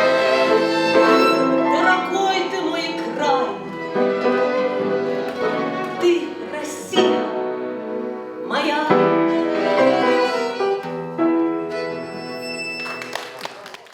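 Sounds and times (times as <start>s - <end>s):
violin: 0.0s - 13.5s
piano: 0.0s - 13.9s.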